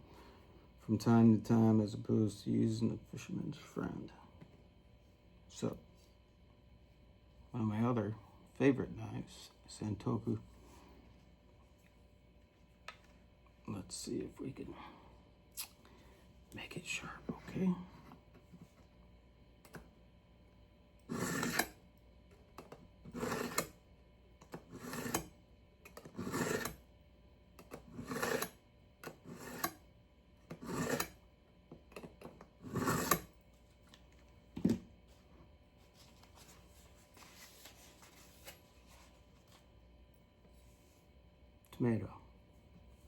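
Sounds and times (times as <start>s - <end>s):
knife scraping on sharpener: 21.1s - 21.8s, 23.1s - 23.8s, 24.5s - 25.3s, 25.9s - 26.8s, 27.6s - 29.8s, 30.5s - 31.2s, 32.0s - 33.3s.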